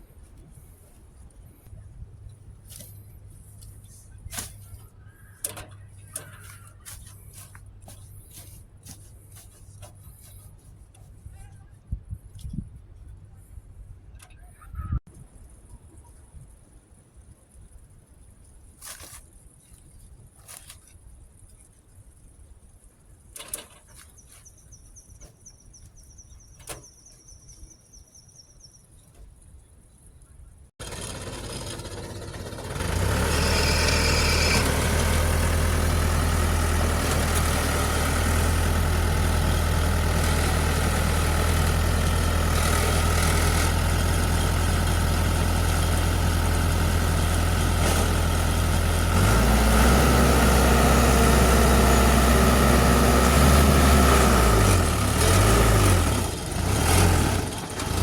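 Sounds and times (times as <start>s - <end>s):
heavy diesel engine humming: 30.8s - 58.0s.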